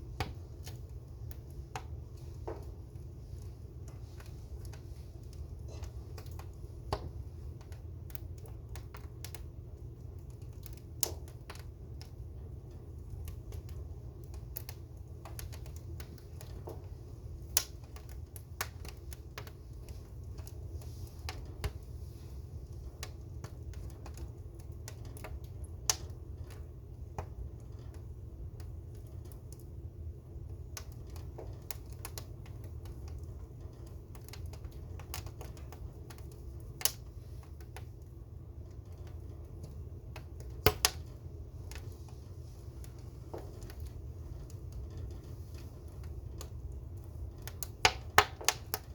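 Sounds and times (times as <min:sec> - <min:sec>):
fire crackling and popping: 0:00.0 - 0:48.9
steady low rumble: 0:11.0 - 0:48.9.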